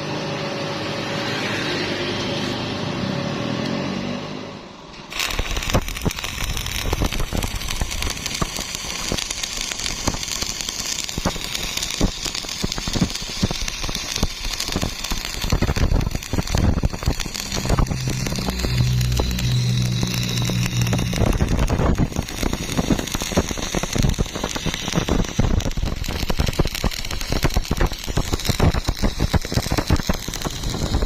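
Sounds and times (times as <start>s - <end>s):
welding arc crackling: 5.0s - 31.0s
low hum: 15.5s - 26.3s.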